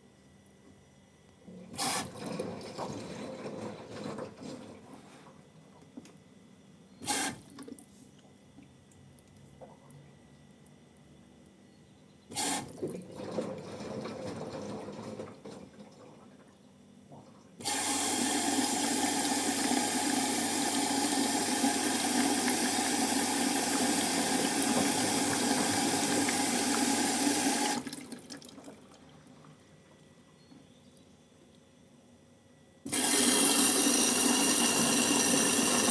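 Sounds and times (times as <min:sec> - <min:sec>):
faint hum: 0:00.0 - 0:33.0
water running: 0:17.1 - 0:29.7, 0:32.9 - 0:35.9.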